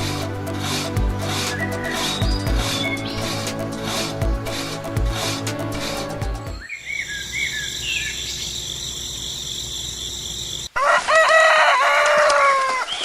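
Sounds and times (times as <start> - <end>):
crickets chirring: 6.5 - 10.7
rooster crowing: 10.7 - 13.0.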